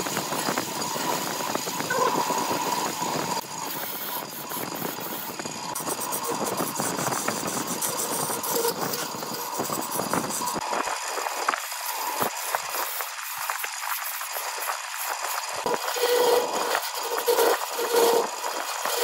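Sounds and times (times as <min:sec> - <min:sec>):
power tool rumbling and rattling: 0:00.0 - 0:19.0
scraping with clicks and taps: 0:01.8 - 0:10.7.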